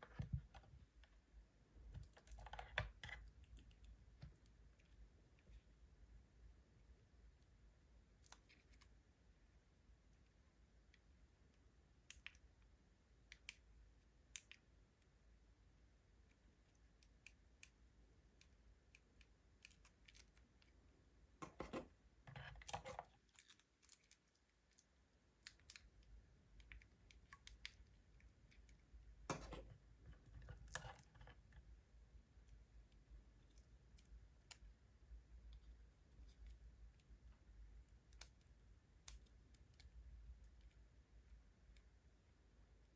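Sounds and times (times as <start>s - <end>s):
small clicks and taps: 12.0s - 14.7s.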